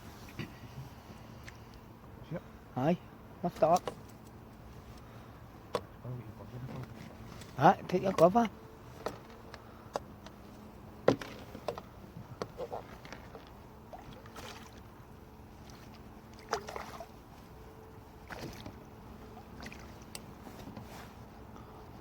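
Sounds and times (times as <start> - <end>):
taps on a kayak: 5.7 - 5.9
faint hum: 11.6 - 22.0.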